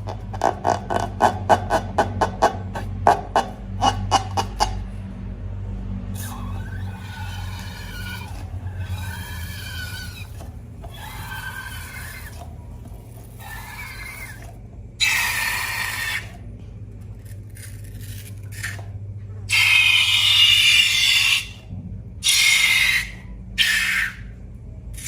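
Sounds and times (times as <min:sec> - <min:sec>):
low steady hum: 0:00.0 - 0:25.0
rubber balloon squeaking: 0:06.2 - 0:16.4.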